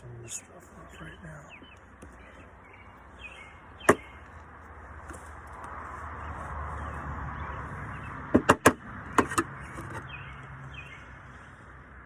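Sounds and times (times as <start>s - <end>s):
sharp knocks: 3.9s - 4.1s, 8.4s - 9.5s.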